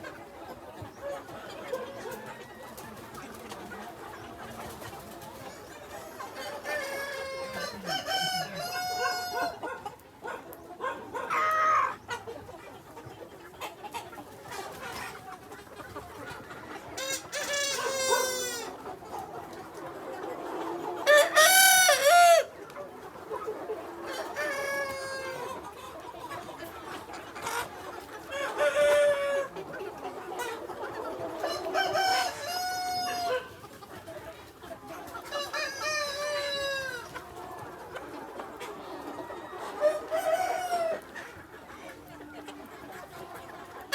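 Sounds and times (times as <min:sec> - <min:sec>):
roosters crowing: 0:06.8 - 0:09.6, 0:21.0 - 0:22.5, 0:31.5 - 0:33.5.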